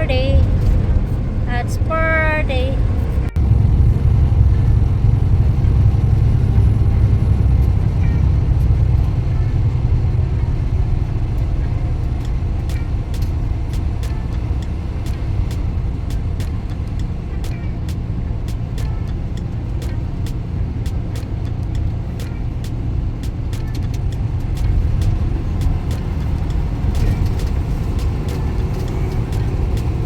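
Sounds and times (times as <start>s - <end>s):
road noise: 0.0s - 30.0s
truck diesel engine rumble: 0.0s - 30.0s.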